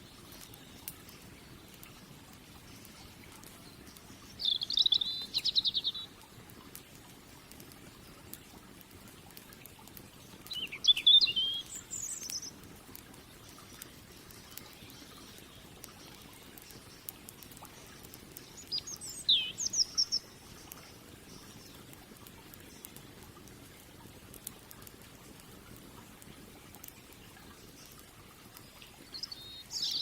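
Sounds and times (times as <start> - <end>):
wood fire crackling: 0.0 - 30.0
songbird warbling: 4.4 - 6.1, 10.5 - 12.6, 18.5 - 20.4, 29.1 - 30.0.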